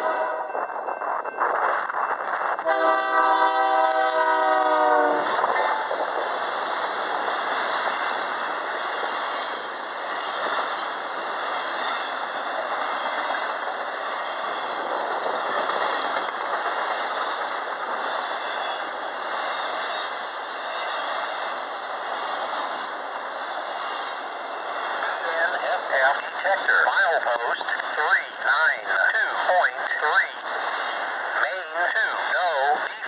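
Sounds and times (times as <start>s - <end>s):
locomotive air horn: 0.0s - 0.5s, 2.6s - 5.3s
train wheels rolling on rails: 0.0s - 26.3s, 29.3s - 31.4s.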